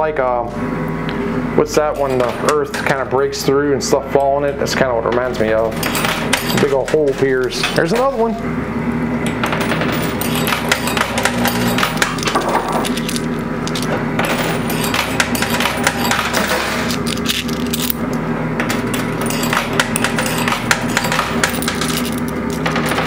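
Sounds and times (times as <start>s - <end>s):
steady machine hum: 0.0s - 23.0s
coins clinking and clattering: 5.7s - 6.8s, 9.4s - 18.1s, 18.7s - 23.0s.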